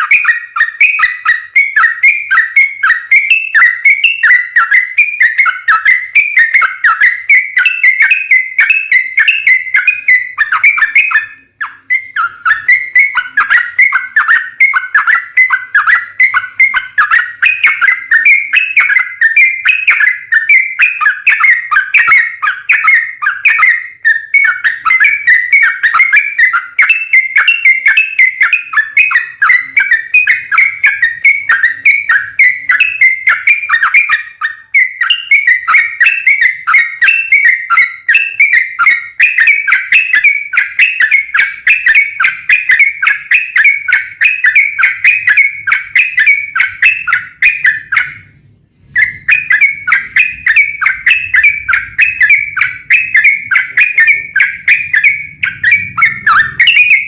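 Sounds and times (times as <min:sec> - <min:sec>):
bird singing fast whistled notes: 0:00.0 - 0:57.0.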